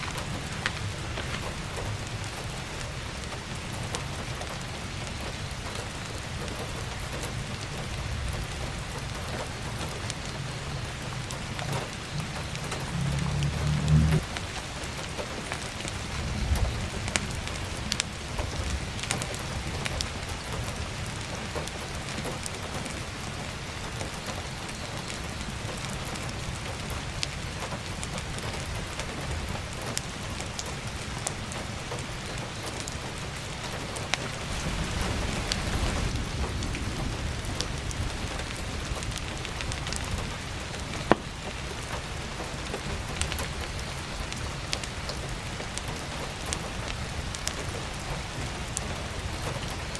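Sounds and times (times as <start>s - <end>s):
heavy rain on a skylight: 0.0s - 49.9s
sharp crackles and pops: 0.0s - 49.9s
low rumble: 10.6s - 14.6s, 34.3s - 40.5s.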